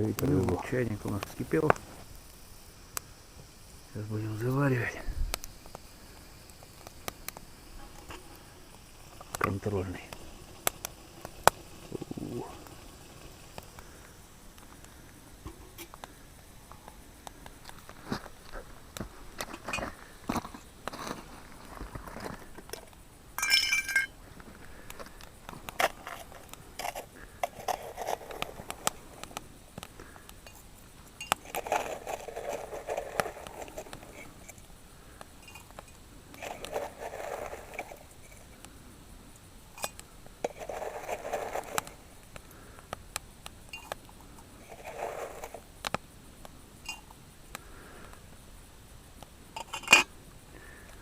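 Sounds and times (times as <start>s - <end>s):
clinks and scrapes of utensils: 23.4s - 24.2s, 49.6s - 50.1s.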